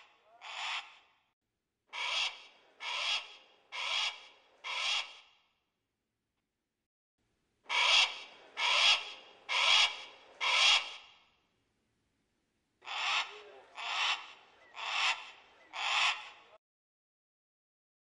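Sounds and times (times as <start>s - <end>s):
eagle screeching: 1.9s - 5.2s, 7.7s - 11.0s, 12.8s - 16.5s.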